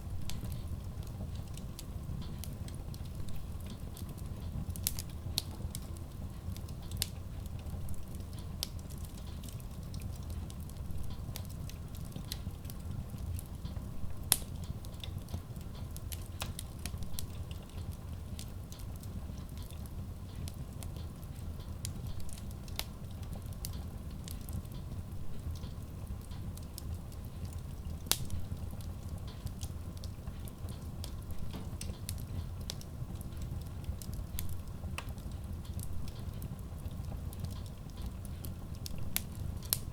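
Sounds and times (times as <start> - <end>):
burning logs crackling: 0.0 - 39.9
fire low rumble: 0.0 - 39.9.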